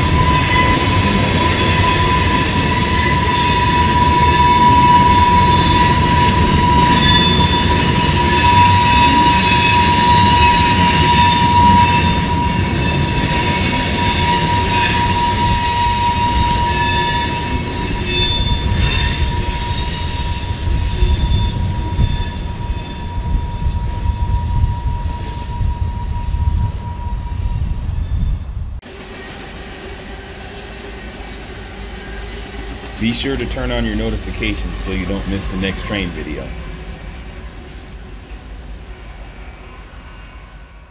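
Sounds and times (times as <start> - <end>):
rumble of wheels on rail: 0.0 - 40.9
train wheels squealing: 0.0 - 40.9.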